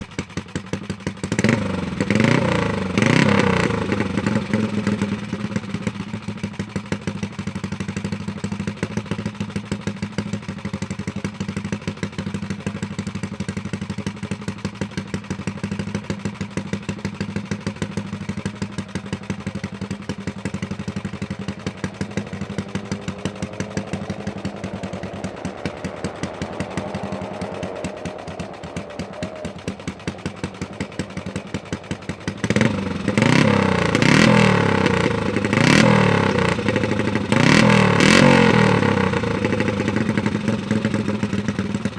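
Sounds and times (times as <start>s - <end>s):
motorcycle engine revving and idling: 0.0s - 41.9s
faint engine note rising in pitch: 21.0s - 36.6s.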